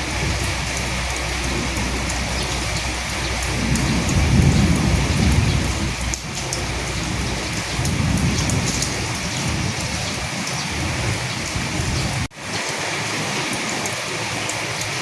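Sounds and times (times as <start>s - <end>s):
rolling thunder: 0.0s - 12.3s
heavy rain: 0.0s - 15.0s.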